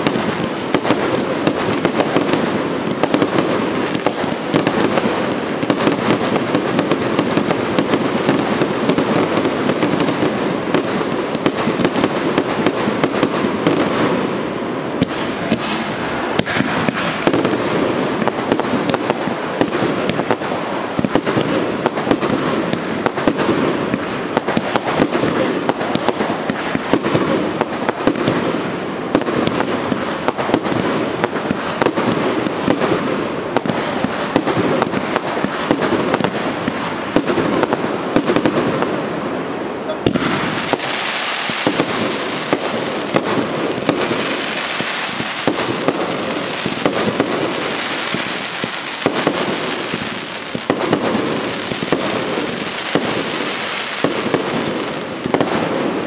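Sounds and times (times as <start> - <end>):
fireworks crackling: 0.0 - 56.0
fireworks launching and bursting: 0.0 - 56.0.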